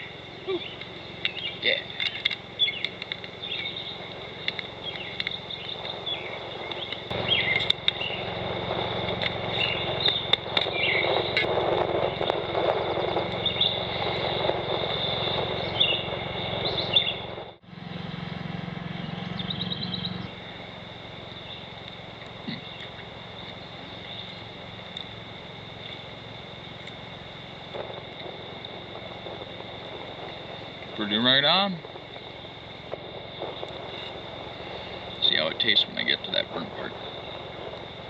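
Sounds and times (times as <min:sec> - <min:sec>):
bird trill: 0:00.0 - 0:04.1, 0:15.6 - 0:17.3, 0:19.0 - 0:20.3
songbirds chirping: 0:00.0 - 0:08.3, 0:15.0 - 0:17.3, 0:18.8 - 0:27.1
high insect drone: 0:00.0 - 0:38.0
rushing noise: 0:00.0 - 0:38.0.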